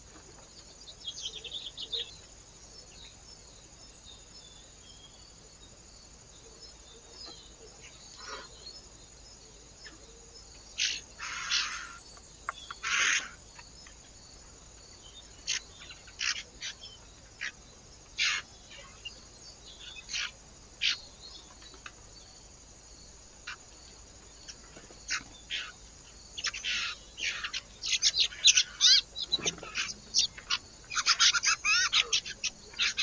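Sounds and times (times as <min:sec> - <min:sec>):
faint steady high hiss: 0:00.0 - 0:33.0
birds chirping at a feeder: 0:24.4 - 0:33.0.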